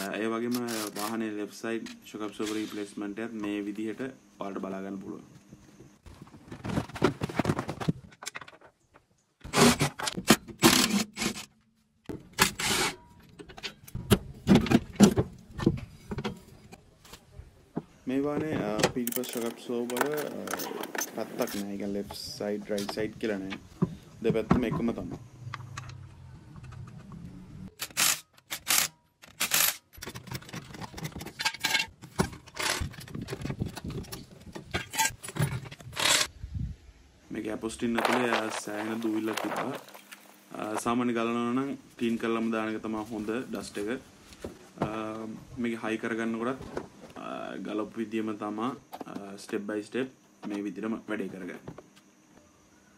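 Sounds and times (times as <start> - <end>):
tools rattling and scraping metal: 12.1 - 16.8, 18.4 - 22.1, 27.7 - 36.3.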